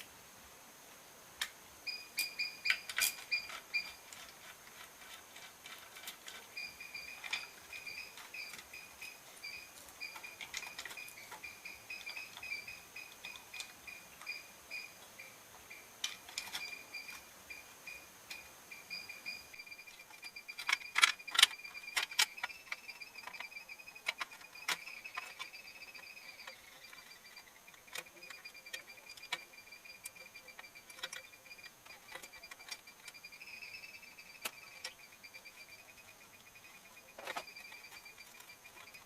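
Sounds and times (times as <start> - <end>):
rapidly pulsing high chirp: 6.5 - 15.9, 18.7 - 39.0.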